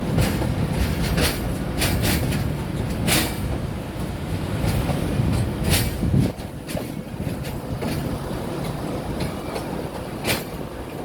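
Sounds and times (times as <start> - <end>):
train rumbling over a bridge: 0.0 - 11.0
wheels clacking on rail joints: 0.0 - 11.0.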